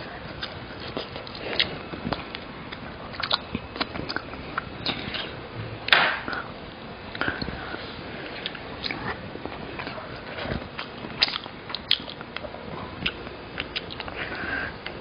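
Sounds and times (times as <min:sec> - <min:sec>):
chewing and biting: 0:00.2 - 0:05.4, 0:08.3 - 0:15.0.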